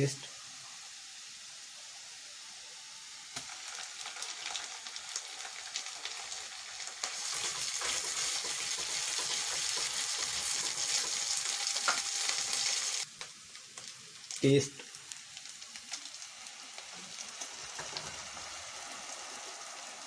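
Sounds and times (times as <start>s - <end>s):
onions sizzling in hot oil: 0.0s - 20.0s
spatula stirring in wok: 7.1s - 13.0s.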